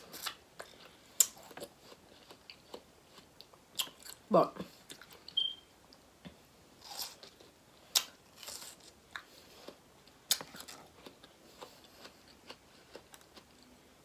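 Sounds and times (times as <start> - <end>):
wet biting and chewing: 7.9 - 13.6.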